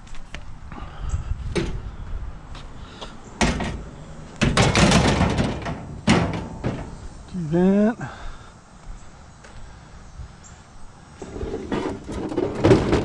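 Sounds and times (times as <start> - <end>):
scrap knocking in a dumpster: 4.4 - 7.0, 11.6 - 13.0
clattering scrape of scrap: 11.2 - 13.0.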